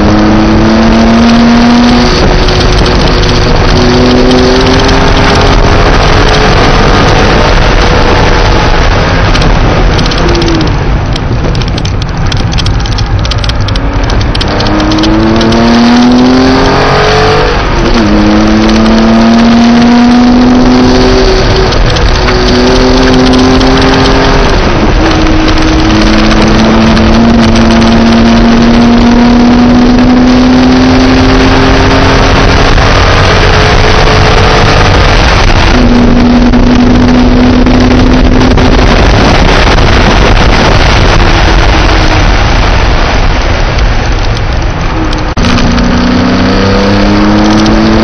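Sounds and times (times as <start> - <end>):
car engine pulling hard: 0.0 - 48.0
road noise: 0.0 - 48.0
wind noise: 0.0 - 48.0.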